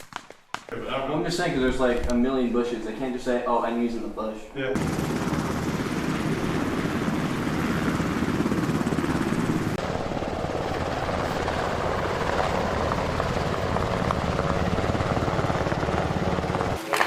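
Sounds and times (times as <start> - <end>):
helicopter rotor beating: 4.8 - 17.0.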